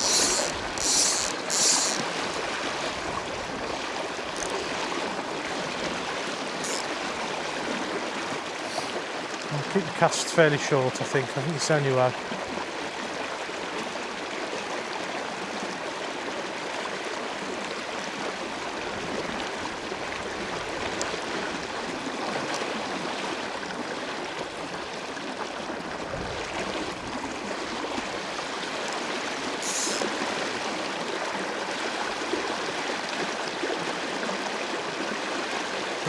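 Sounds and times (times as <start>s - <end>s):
river water flowing: 0.0s - 36.0s
brief high hiss: 29.6s - 30.1s.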